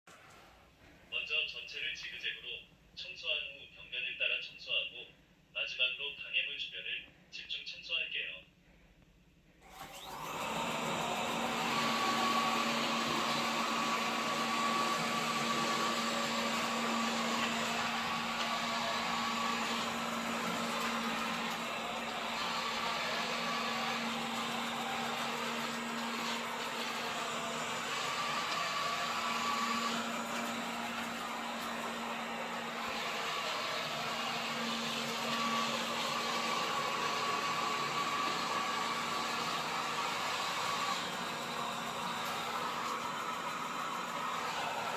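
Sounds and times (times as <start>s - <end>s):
robot vacuum cleaner whirring: 9.6s - 44.9s.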